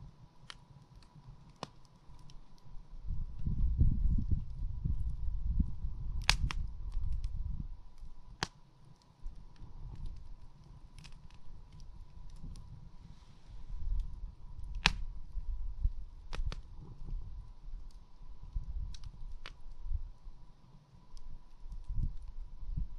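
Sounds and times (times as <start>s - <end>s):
campfire crackling: 0.0s - 22.9s
sharp fire pops: 0.4s - 2.6s, 3.2s - 7.4s, 8.0s - 8.6s, 13.6s - 17.2s, 17.8s - 19.8s.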